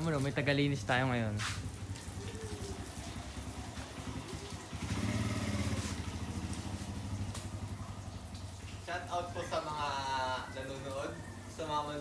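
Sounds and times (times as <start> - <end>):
small engine running: 1.8 - 8.0.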